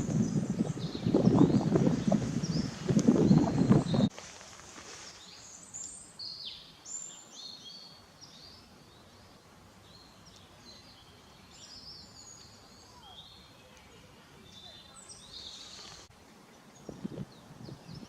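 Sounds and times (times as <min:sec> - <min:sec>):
small birds chirping: 0:00.0 - 0:04.1, 0:04.9 - 0:18.0
faint background hiss: 0:04.1 - 0:18.0.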